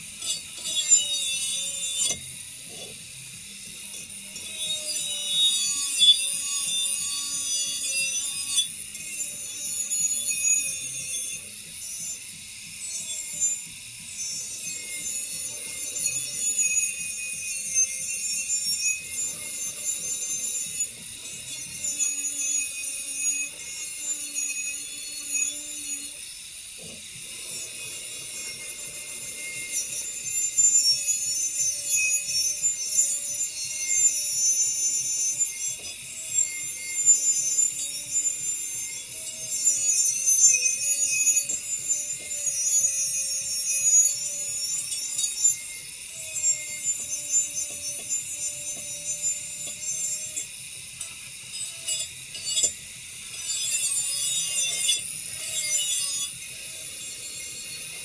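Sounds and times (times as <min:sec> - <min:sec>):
abrasive sanding and scraping on wheel: 0:26.8 - 0:58.0.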